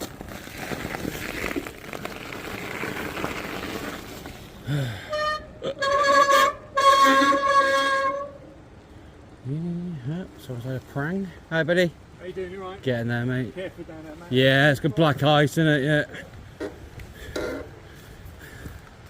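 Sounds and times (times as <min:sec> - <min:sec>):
car horn blasts: 0:05.1 - 0:08.4.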